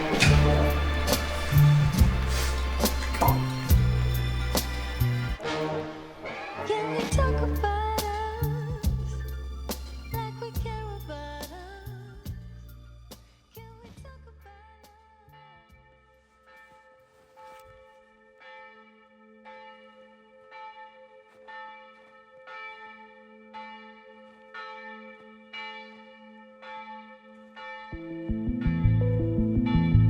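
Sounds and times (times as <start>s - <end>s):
bell tolling: 0.0s - 5.4s
loud music: 0.0s - 10.7s.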